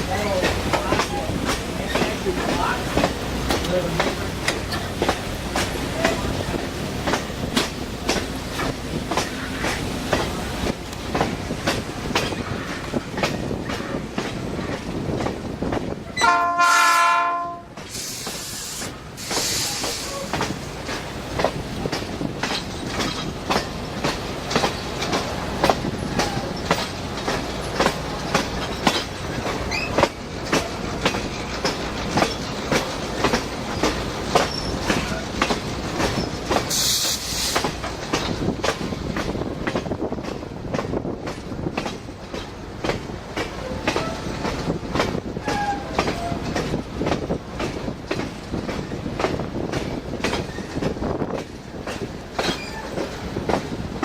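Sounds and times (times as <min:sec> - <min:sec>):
train wheels clicking over rail joints: 0:00.0 - 0:17.0, 0:17.7 - 0:54.0
brief hiss: 0:17.9 - 0:20.3, 0:36.7 - 0:37.7
faint wheel squeals: 0:34.4 - 0:35.0, 0:52.5 - 0:53.0.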